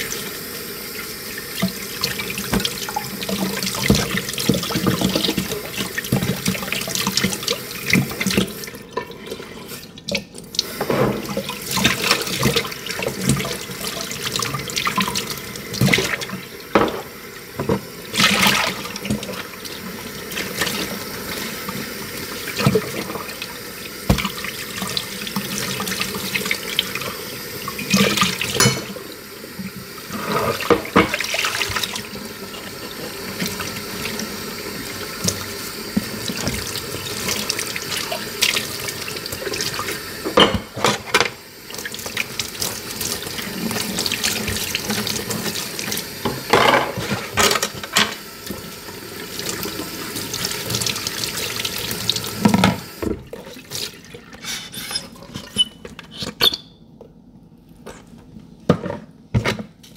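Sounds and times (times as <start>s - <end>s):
tap water running into sink: 0.0s - 54.4s
dishes clinking and knocking: 16.7s - 17.8s, 28.5s - 29.0s, 46.2s - 48.2s.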